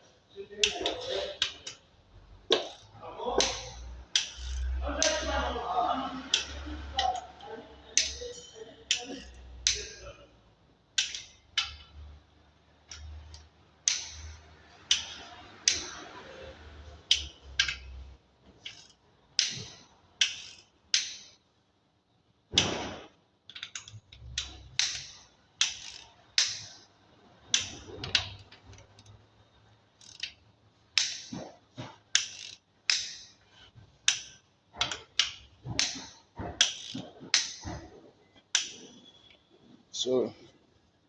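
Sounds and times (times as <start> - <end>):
socket wrench clicking: 2.5 - 5.2, 10.9 - 12.0, 12.9 - 16.1, 17.0 - 17.9, 18.6 - 21.4, 23.5 - 26.9, 30.0 - 31.4, 32.1 - 33.4.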